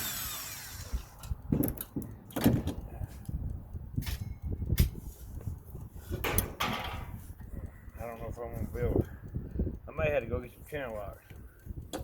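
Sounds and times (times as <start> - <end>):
metal tools knocking and clunking: 6.1 - 7.2.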